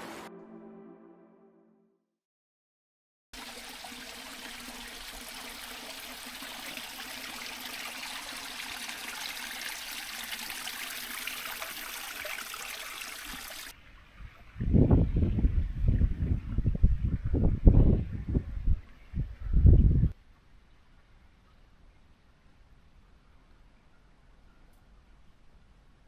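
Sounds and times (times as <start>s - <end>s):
music: 0.0s - 2.1s
running water rushing: 3.4s - 13.8s.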